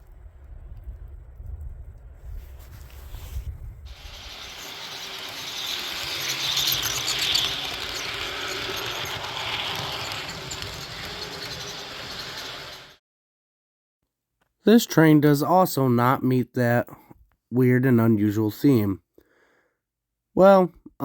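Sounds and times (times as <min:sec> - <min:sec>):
train wheels rushing on rails: 0:03.9 - 0:13.0.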